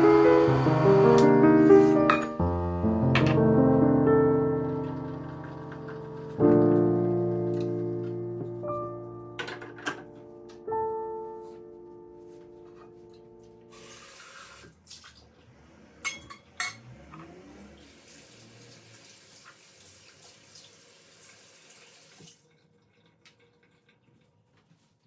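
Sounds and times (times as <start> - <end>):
piano note: 0.0 - 13.7
tap water running into sink: 4.6 - 6.9, 13.7 - 15.3, 17.8 - 24.5.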